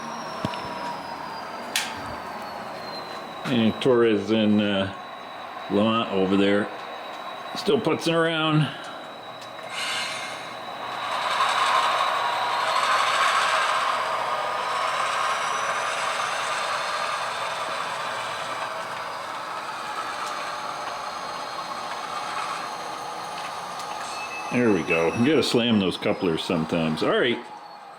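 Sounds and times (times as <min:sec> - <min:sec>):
model train motor whirring: 0:00.0 - 0:27.9
model train wheels rattling: 0:09.4 - 0:25.6.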